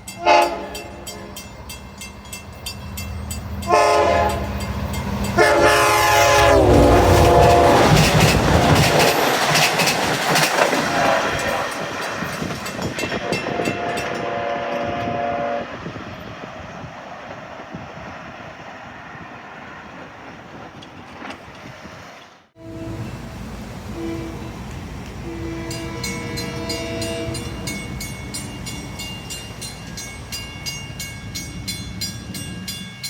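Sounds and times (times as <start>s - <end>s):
wheels clicking over rail joints: 0.0s - 15.2s, 19.9s - 33.0s
train passing: 0.0s - 33.0s
train horn: 0.1s - 1.6s, 3.6s - 4.7s, 5.3s - 9.2s, 10.7s - 12.0s, 13.0s - 15.9s, 22.6s - 28.5s.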